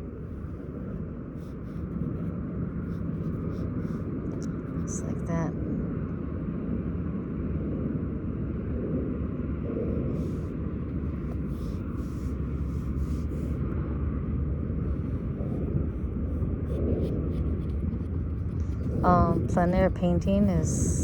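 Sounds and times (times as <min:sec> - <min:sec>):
distant traffic: 0:00.0 - 0:07.1, 0:07.8 - 0:21.0
wind on microphone: 0:07.6 - 0:13.7, 0:14.6 - 0:21.0.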